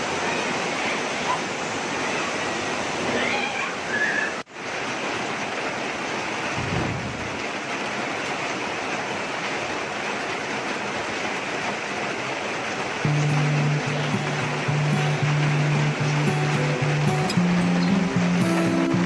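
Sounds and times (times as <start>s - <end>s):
heavy rain pouring: 0.0s - 19.0s
background music low tone: 13.1s - 19.0s.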